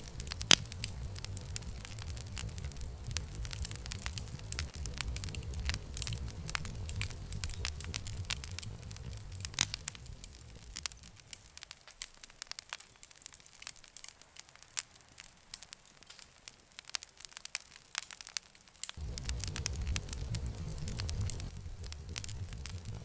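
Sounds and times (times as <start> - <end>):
low rumble: 0.0 - 11.4, 19.0 - 23.0
wood fire crackling: 0.0 - 23.0.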